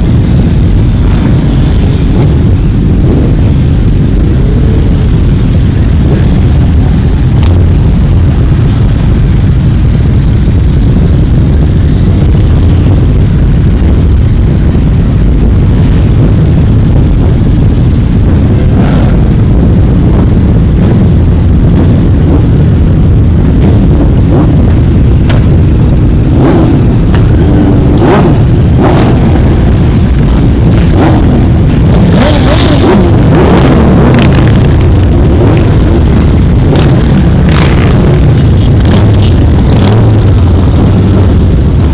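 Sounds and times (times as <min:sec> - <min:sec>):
many motorcycle engines rumbling: 0:00.0 - 0:41.9
motorcycle engines revving: 0:00.0 - 0:41.9
engine pops: 0:25.2 - 0:25.7.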